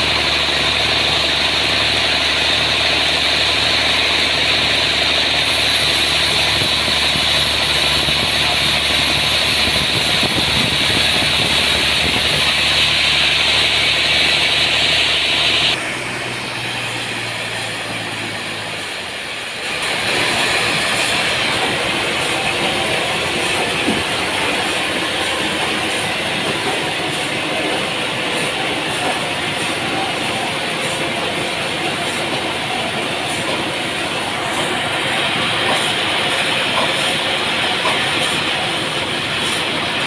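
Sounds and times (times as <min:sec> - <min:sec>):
loud high hiss: 0:00.0 - 0:15.8
sawmill engine running: 0:00.0 - 0:40.0.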